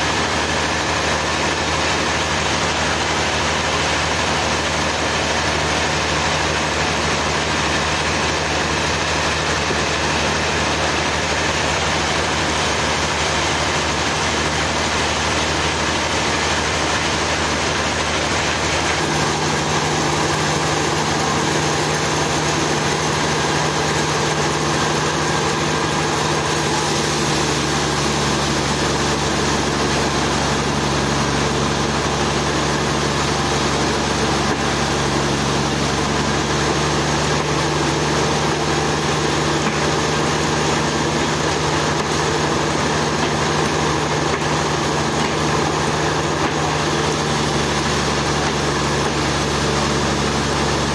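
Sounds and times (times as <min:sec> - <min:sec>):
sawmill engine running: 0:00.0 - 0:50.9.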